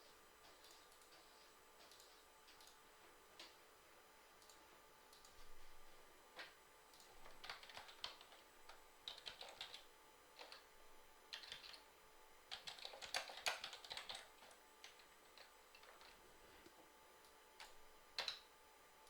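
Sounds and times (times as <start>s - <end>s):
computer keyboard typing: 0.4s - 2.8s, 6.4s - 10.7s, 11.3s - 11.9s, 12.5s - 16.2s, 17.6s - 18.5s.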